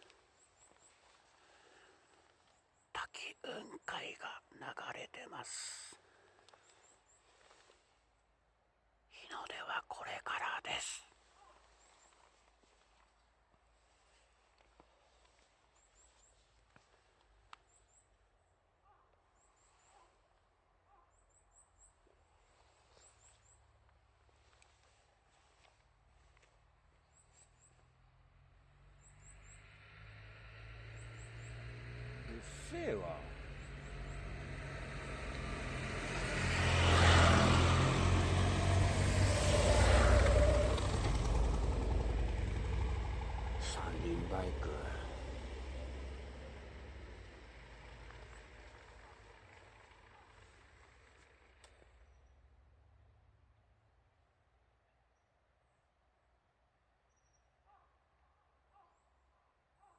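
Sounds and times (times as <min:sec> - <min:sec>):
three-wheeled motorbike: 0:00.0 - 0:02.9, 0:06.0 - 0:08.1, 0:11.2 - 0:18.3, 0:20.9 - 0:54.3
vehicle engines passing close: 0:00.0 - 0:07.9, 0:22.0 - 0:53.8
faint outdoor hiss: 0:00.0 - 0:18.4.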